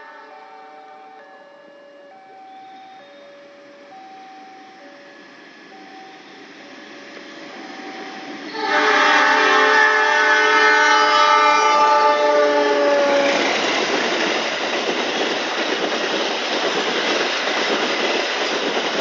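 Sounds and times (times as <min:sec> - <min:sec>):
two-tone electronic warning signal: 0:00.0 - 0:13.2
train passing: 0:00.0 - 0:19.0
locomotive horn: 0:08.5 - 0:13.4.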